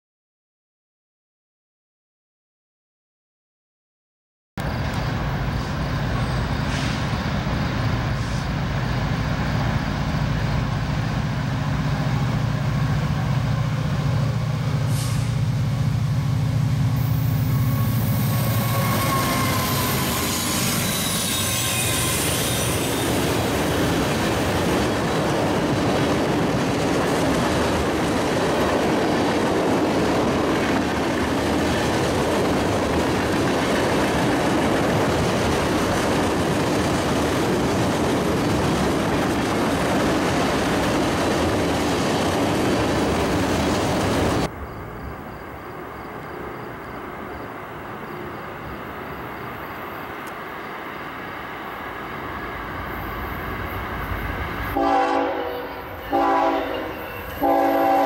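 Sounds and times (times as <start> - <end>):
locomotive engine rumble: 4.6 - 21.0
rail cars rushing past: 4.6 - 58.0
wheel squeals: 17.0 - 23.7.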